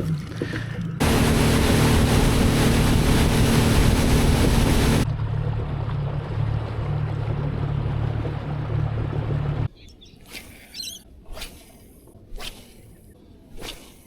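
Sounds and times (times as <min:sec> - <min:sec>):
motorboat engine hum: 0:00.0 - 0:09.7
rush of wind and water: 0:01.0 - 0:05.3
low rumble: 0:01.0 - 0:09.4.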